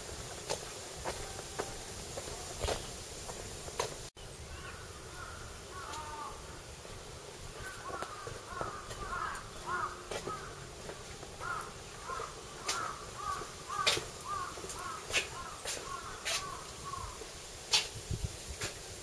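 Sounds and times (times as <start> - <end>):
bird calling: 4.2 - 6.7, 7.6 - 10.8, 11.4 - 17.9.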